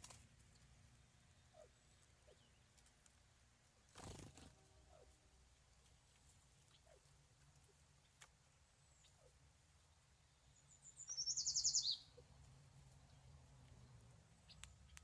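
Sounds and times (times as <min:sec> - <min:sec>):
faint click: 0:14.5 - 0:15.0.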